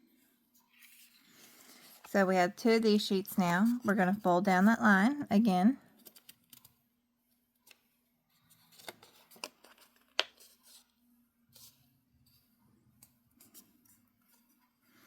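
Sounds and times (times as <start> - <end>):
paper rustling and crinkling: 0.6 - 2.1, 7.6 - 11.8
sharp paper clicks: 6.0 - 6.8.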